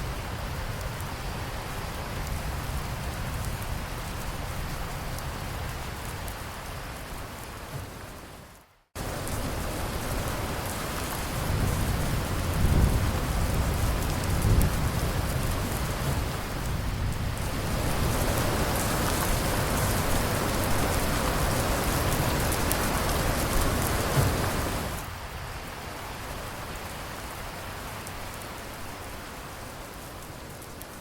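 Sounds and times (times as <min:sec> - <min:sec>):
steady rain falling: 0:00.0 - 0:31.0
low rumble of thunder: 0:09.0 - 0:25.1.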